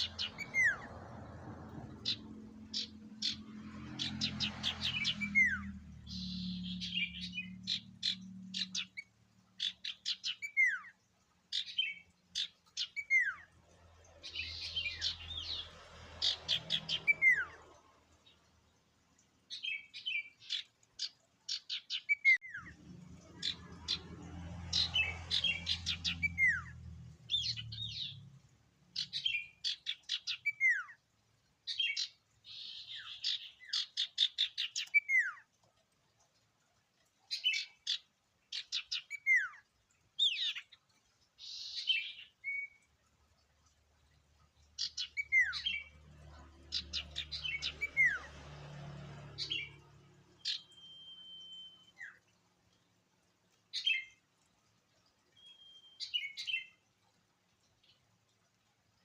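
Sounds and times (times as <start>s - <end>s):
songbird singing trills and whistles: 0.0s - 0.9s, 4.0s - 13.5s, 16.3s - 17.7s, 19.5s - 28.3s, 29.0s - 31.0s, 31.7s - 35.5s, 44.8s - 45.9s, 46.7s - 48.3s, 49.4s - 52.3s, 55.4s - 56.8s.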